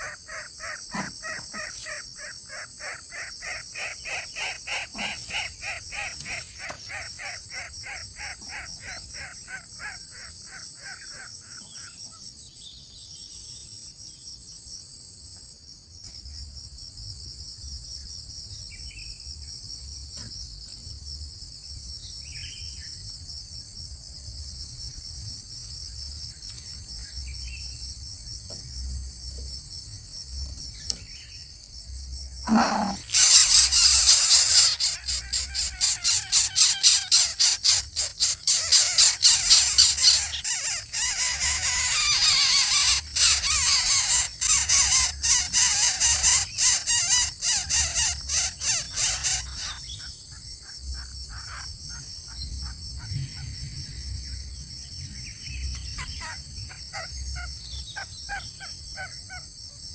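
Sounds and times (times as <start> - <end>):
bird harsh calls: 0.0 - 12.2, 32.5 - 53.6, 55.8 - 59.4
high-pitched insect drone: 31.8 - 50.0.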